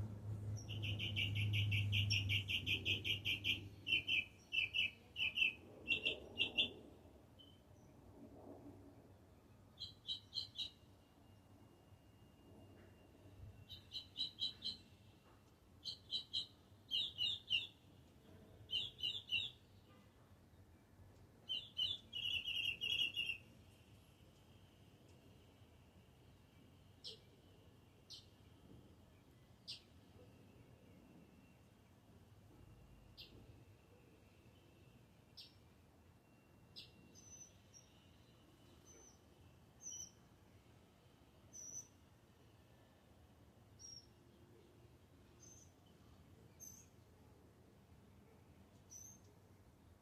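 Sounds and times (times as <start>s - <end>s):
songbird singing: 0.0s - 8.0s, 9.4s - 25.3s, 26.2s - 32.1s, 32.8s - 42.8s, 43.7s - 47.1s, 48.2s - 49.4s
high bird chirps: 0.5s - 6.8s, 9.8s - 10.9s, 13.6s - 15.0s, 15.8s - 17.8s, 18.7s - 19.6s, 21.5s - 23.4s.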